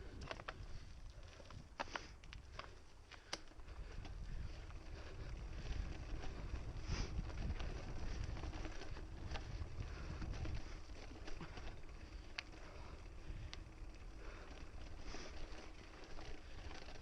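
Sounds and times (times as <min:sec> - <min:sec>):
bike clicks and rattles: 0:00.0 - 0:17.0
wind buffeting microphone: 0:03.6 - 0:16.8.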